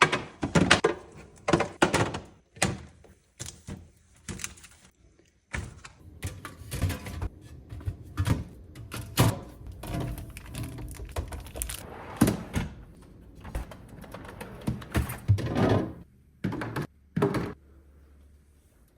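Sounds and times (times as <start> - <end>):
groceries thunking on fridge shelves: 0.0 - 3.0, 5.5 - 17.6.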